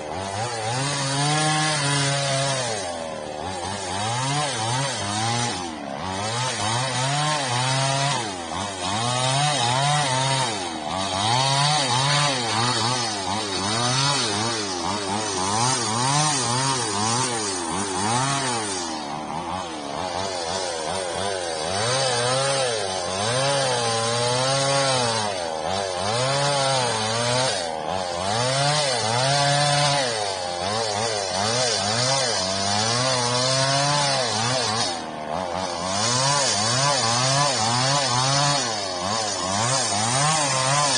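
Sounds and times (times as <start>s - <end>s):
chainsaw cutting under load: 0.0s - 40.9s.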